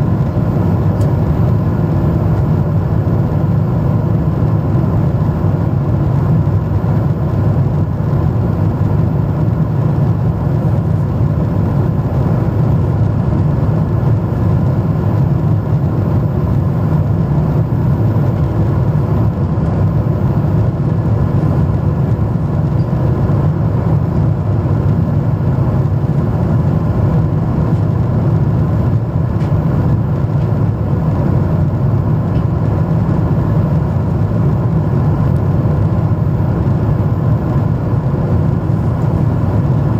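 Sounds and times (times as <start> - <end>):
jet engine cabin drone: 0.0 - 39.9.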